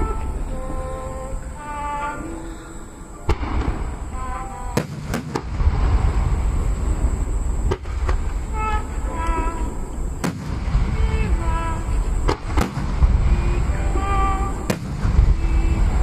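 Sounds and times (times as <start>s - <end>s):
fireworks rumble: 0.0s - 16.0s
firework cracks: 3.2s - 16.0s.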